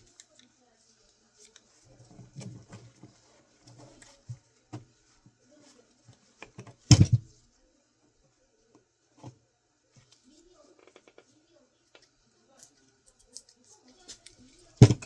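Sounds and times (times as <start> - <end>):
parts clattering: 6.6 - 7.3, 14.1 - 15.0
small metal and plastic parts clicking: 12.0 - 15.0.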